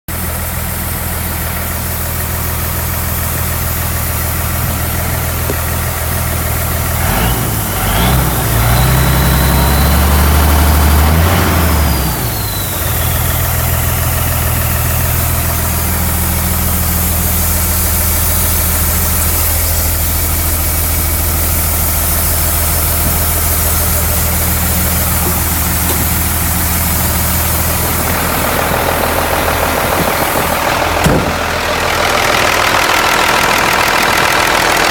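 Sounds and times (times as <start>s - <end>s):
diesel engine idling and revving: 0.1s - 34.9s
high whine sliding down: 20.5s - 34.4s.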